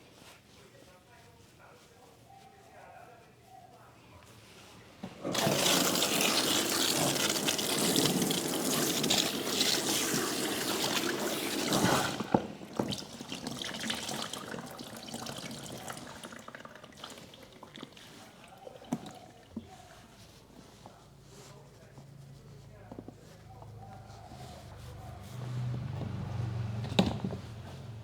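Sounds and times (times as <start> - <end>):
water running and splashing: 5.2 - 20.4
water dripping: 5.3 - 19.7.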